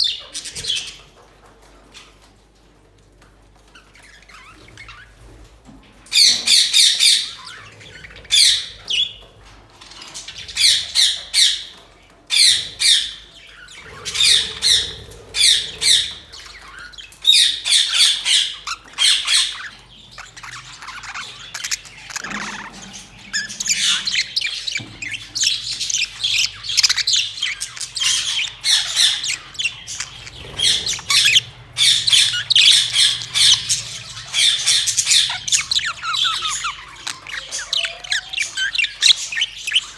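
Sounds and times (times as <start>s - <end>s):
budgerigars chattering: 0.0s - 1.0s, 6.1s - 39.9s.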